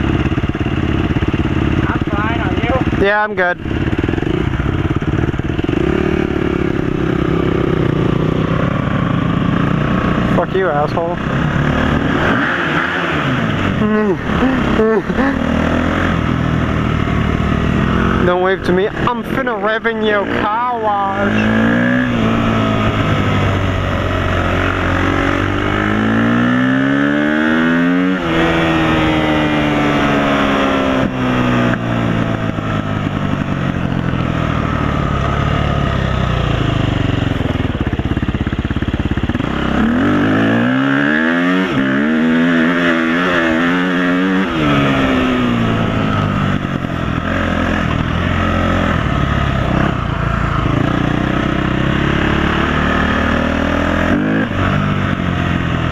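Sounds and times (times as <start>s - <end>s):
off-road vehicle engine revving: 0.0s - 55.9s.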